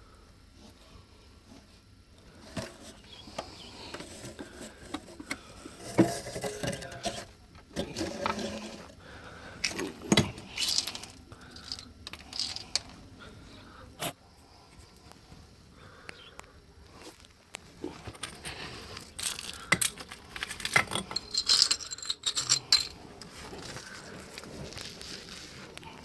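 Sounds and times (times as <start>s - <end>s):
clicks and clatter of hand work: 2.4s - 8.9s, 17.1s - 26.0s.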